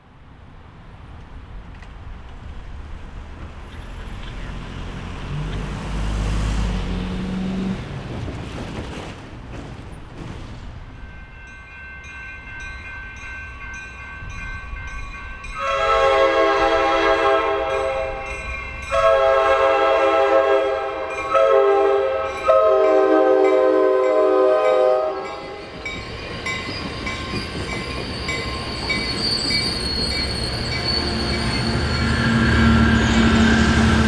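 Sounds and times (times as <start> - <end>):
train horn blasts: 15.6 - 25.6.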